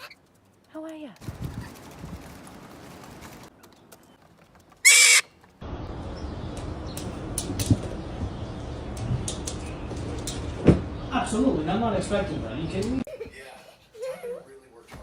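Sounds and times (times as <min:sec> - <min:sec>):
bird shrill screech: 0:04.8 - 0:05.3.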